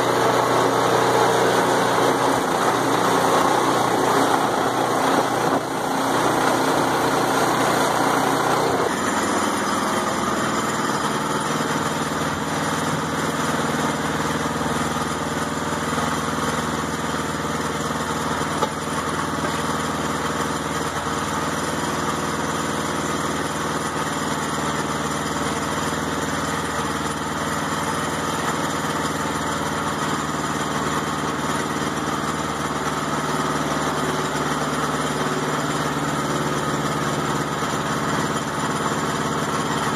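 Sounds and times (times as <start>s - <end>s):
band saw cutting log: 0.0s - 39.9s
small gas engine running: 0.0s - 39.9s.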